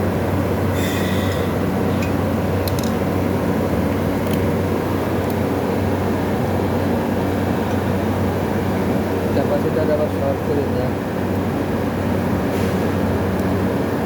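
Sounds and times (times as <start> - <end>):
rough mechanical noise: 0.0 - 8.2
refrigerator compressor humming: 0.0 - 14.0.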